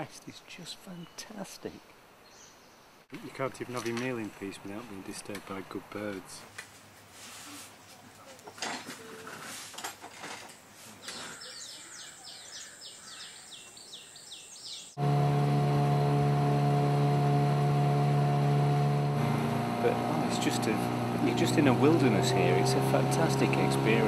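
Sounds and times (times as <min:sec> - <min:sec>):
high steady tone: 0:15.0 - 0:23.1
loud engine drone: 0:15.0 - 0:24.0.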